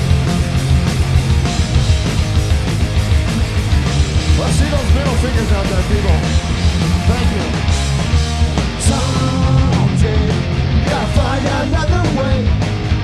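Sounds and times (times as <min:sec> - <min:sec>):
live punk rock band: 0:00.0 - 0:13.0.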